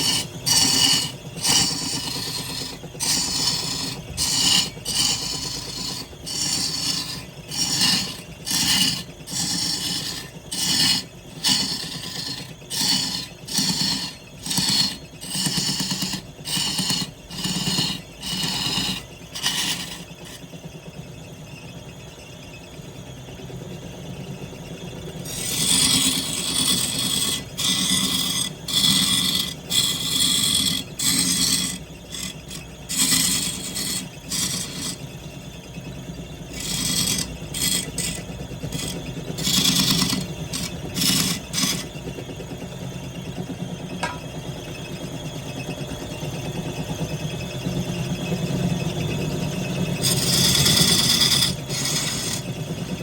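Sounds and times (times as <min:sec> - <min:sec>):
wood lathe motor hum: 0:00.0 - 0:20.6, 0:25.2 - 0:42.3, 0:44.0 - 0:44.3, 0:49.2 - 0:53.0
tool scraping spinning wood: 0:00.0 - 0:20.7, 0:25.2 - 0:42.3, 0:43.9 - 0:44.5, 0:48.9 - 0:53.0.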